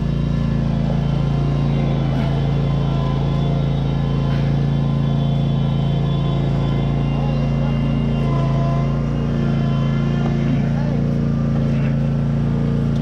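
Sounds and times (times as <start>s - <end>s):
riding lawn mower engine: 0.0s - 13.0s.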